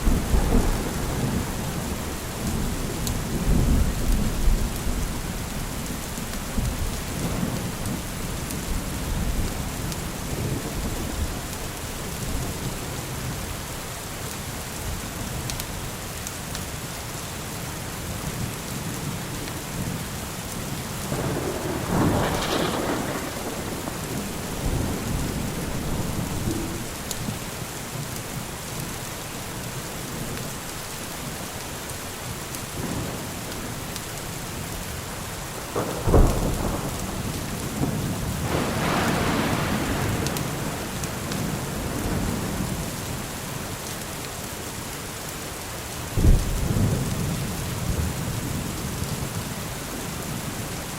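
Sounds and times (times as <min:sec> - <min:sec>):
low rolling thunder: 0:00.0 - 0:13.4, 0:21.0 - 0:27.5, 0:35.5 - 0:43.8, 0:46.1 - 0:50.7
steady rain: 0:00.0 - 0:50.9
sharp thunder crash: 0:21.2 - 0:26.8, 0:35.8 - 0:41.0.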